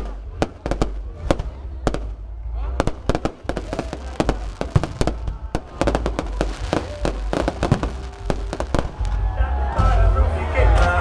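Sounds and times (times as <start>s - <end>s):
firework bangs and crackles: 0.0s - 11.0s.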